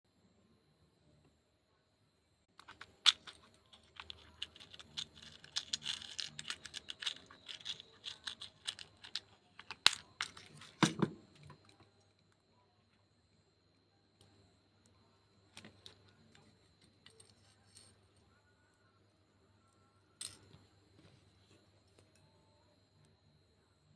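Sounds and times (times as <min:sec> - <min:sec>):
craft pieces clicking and crinkling: 0:02.6 - 0:11.1.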